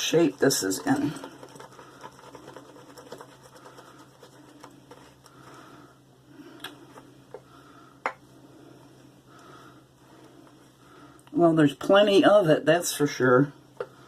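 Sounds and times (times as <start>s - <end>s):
shaving brush swishing lather: 0.0s - 5.5s.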